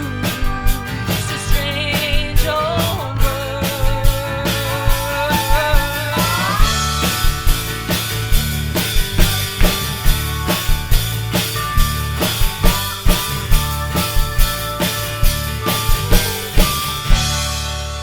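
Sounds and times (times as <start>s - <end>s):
band playing a song: 0.0s - 18.0s
drum kit steady beat: 0.0s - 18.0s.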